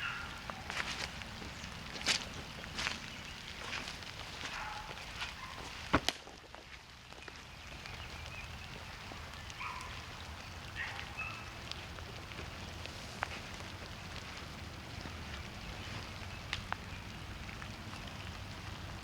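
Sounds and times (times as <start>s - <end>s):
faint animal calls: 0.0s - 1.2s, 8.7s - 12.5s
campfire crackling and popping: 0.0s - 19.0s.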